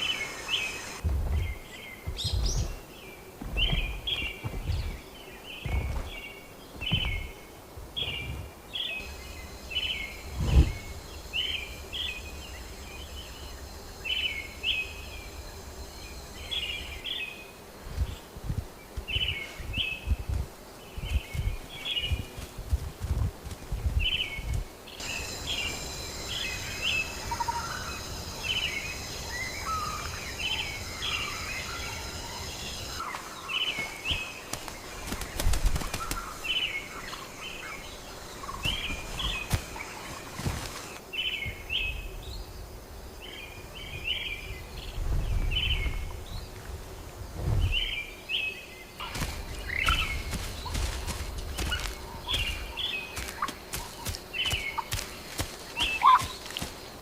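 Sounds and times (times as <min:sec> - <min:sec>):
birds chirping: 0:00.0 - 0:57.0
steady high whine: 0:24.4 - 0:34.7.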